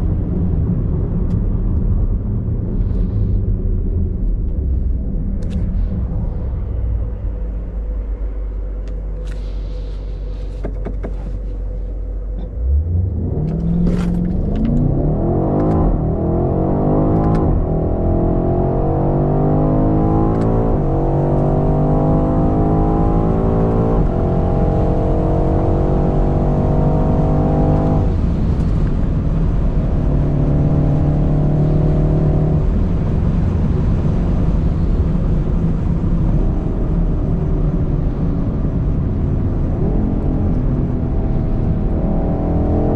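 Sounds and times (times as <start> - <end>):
car engine accelerating hard: 12.3 - 42.9.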